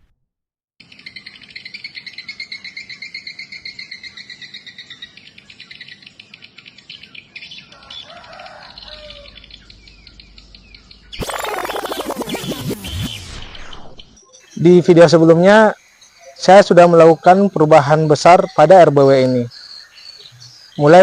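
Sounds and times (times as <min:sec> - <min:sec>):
swiftlets chirping: 0:11.2 - 0:14.2.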